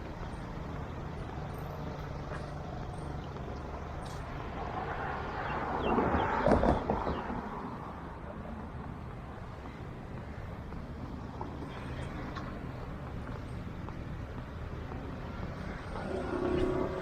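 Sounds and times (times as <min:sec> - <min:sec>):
road traffic passing: 0:00.0 - 0:17.0
vehicle engine: 0:10.4 - 0:17.0.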